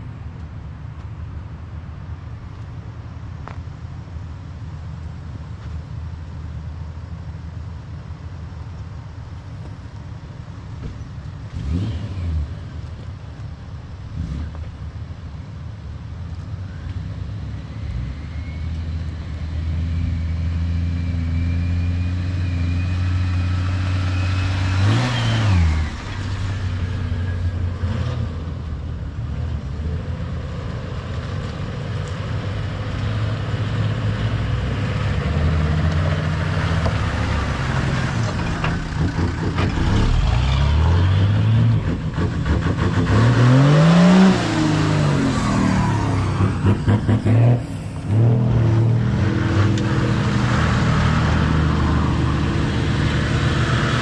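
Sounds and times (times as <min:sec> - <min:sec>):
off-road vehicle engines running: 0:00.0 - 0:54.0.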